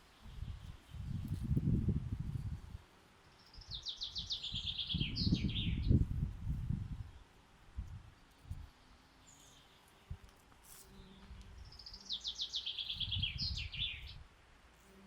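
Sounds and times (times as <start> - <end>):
songbird trilling: 11.6 - 14.2.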